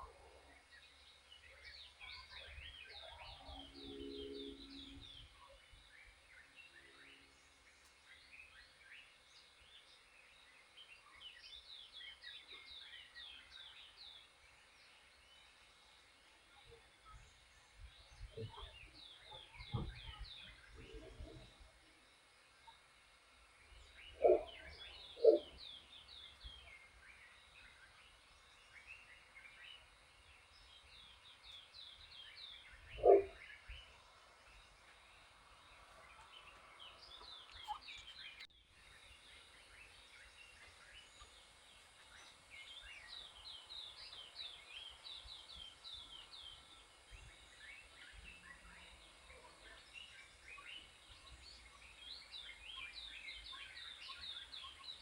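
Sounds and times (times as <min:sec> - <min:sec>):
faint birdsong: 0:00.0 - 0:55.0
loud low bird calls: 0:23.8 - 0:26.7, 0:31.2 - 0:33.9
high bird chirps and twitters: 0:37.5 - 0:38.5.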